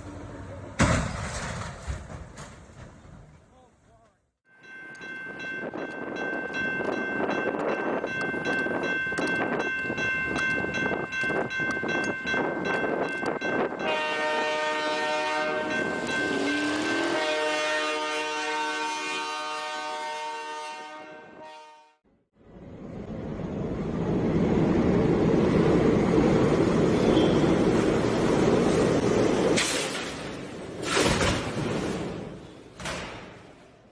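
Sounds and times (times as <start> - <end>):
train wheels clicking over rail joints: 0.0 - 4.2
train horn: 13.8 - 22.0, 27.0 - 27.6.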